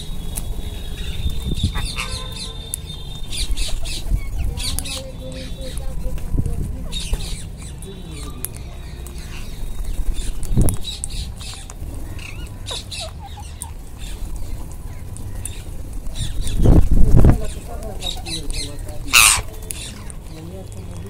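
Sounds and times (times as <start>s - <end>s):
parakeets squawking: 0.7s - 6.2s, 6.8s - 20.3s.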